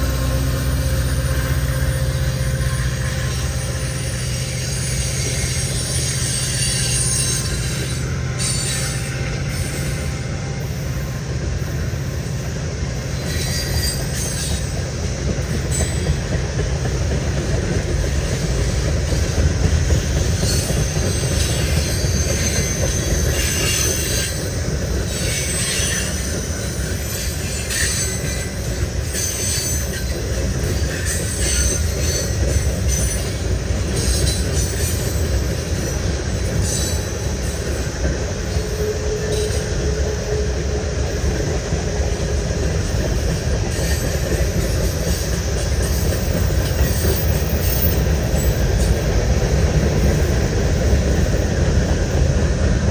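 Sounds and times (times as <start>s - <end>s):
high-pitched wheel squeal: 0.0s - 11.1s, 13.1s - 14.8s, 20.0s - 41.4s
steel wheels rumbling on rail: 0.0s - 52.9s.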